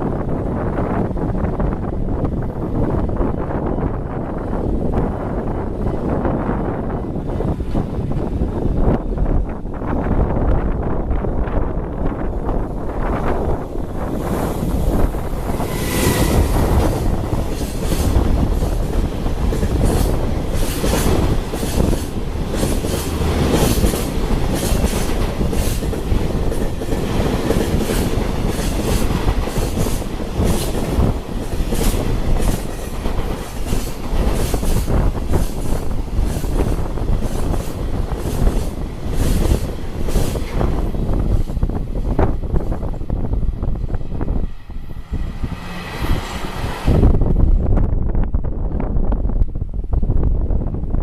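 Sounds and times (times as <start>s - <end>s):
train wheels clattering: 13.5s - 42.9s
high squeal: 15.5s - 17.2s.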